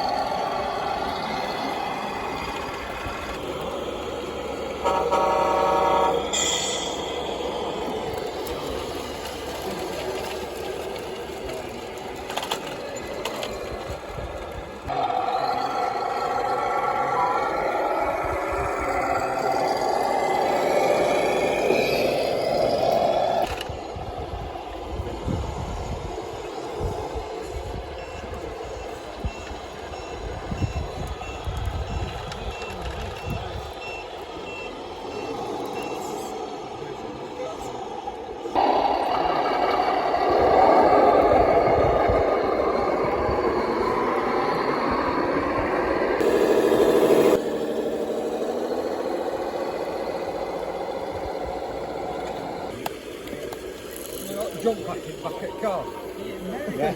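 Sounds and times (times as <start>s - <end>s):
reversing alarm beeping: 0.0s - 9.9s, 14.9s - 23.4s, 26.3s - 36.7s, 55.1s - 56.5s
steady hum: 0.0s - 11.5s, 35.0s - 53.9s
low rumbling noise: 0.0s - 32.6s, 33.2s - 56.9s
high motor whine: 0.0s - 56.9s
small electric motor running: 46.2s - 55.4s.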